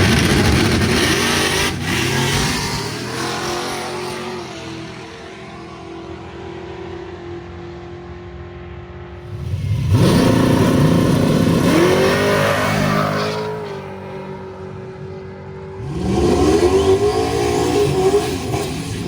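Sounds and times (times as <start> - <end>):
car engine revving on launch: 0.0 - 4.5, 9.2 - 14.6, 15.8 - 19.0.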